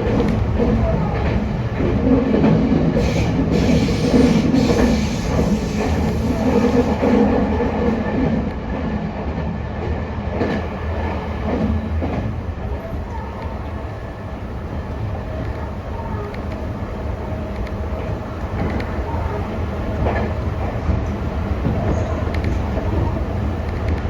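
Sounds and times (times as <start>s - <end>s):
wheels clacking over rail joints: 0.0s - 8.4s, 14.6s - 24.0s
train rumble: 0.0s - 24.0s.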